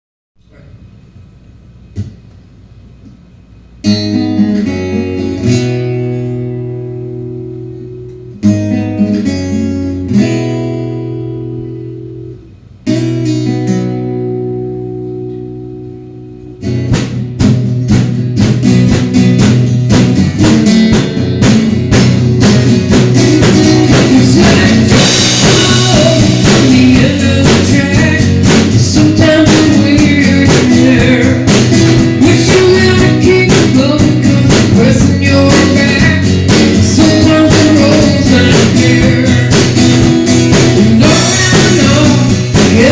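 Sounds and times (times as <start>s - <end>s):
guitar chords ringing out: 3.8s - 42.9s
guitar strummed rhythm: 3.8s - 42.9s.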